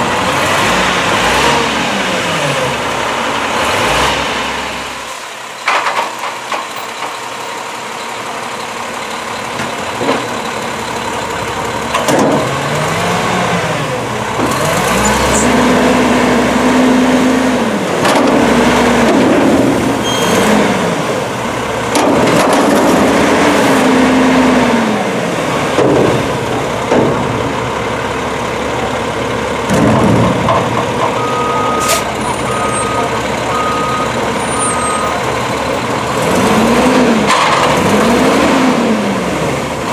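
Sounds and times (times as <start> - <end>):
garbage truck engine revving: 0.0 - 5.6, 8.2 - 39.9
backup alarm beeping: 31.2 - 35.2.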